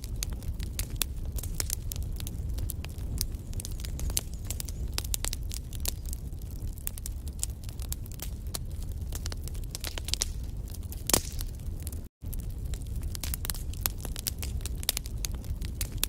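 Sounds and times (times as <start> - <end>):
fire flames rumbling: 0.0 - 16.0
logs crackling and popping: 0.0 - 16.0.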